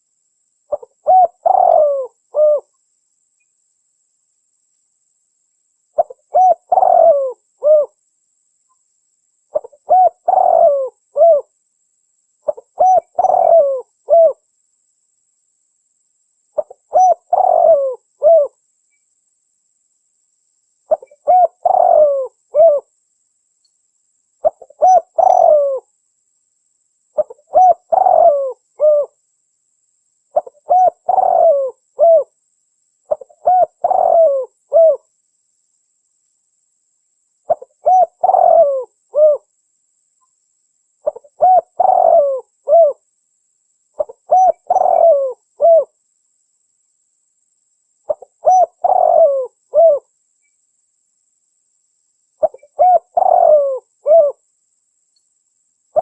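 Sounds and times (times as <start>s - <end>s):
dove cooing: 0.7s - 2.7s, 6.0s - 8.0s, 9.5s - 11.5s, 12.4s - 14.4s, 16.6s - 18.6s, 20.9s - 22.9s, 24.4s - 25.9s, 27.2s - 29.2s, 30.3s - 32.3s, 33.1s - 35.0s, 37.5s - 39.5s, 41.0s - 43.0s, 44.0s - 46.0s, 48.1s - 50.1s, 52.4s - 54.4s.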